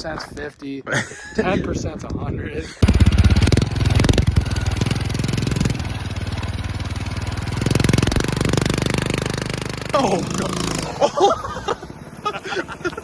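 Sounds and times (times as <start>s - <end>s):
mini bike engine running: 2.8s - 13.0s.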